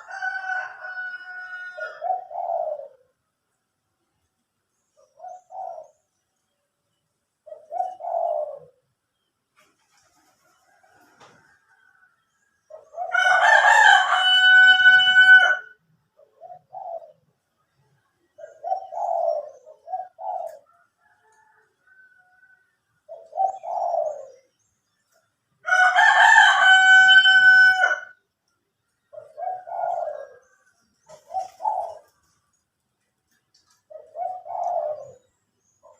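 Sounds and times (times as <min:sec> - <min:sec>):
rooster crowing: 0:00.0 - 0:02.2, 0:13.0 - 0:15.8, 0:25.6 - 0:28.2
doves cooing: 0:00.0 - 0:03.3, 0:05.0 - 0:06.2, 0:07.4 - 0:09.0, 0:09.6 - 0:12.1, 0:12.7 - 0:24.6, 0:29.1 - 0:32.6, 0:33.3 - 0:35.9.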